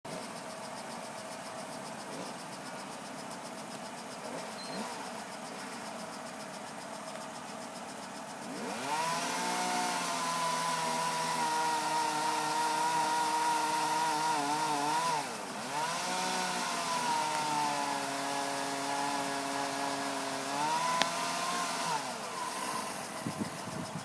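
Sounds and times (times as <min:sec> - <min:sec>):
chainsaw cutting wood: 0:04.2 - 0:05.8, 0:08.4 - 0:24.0.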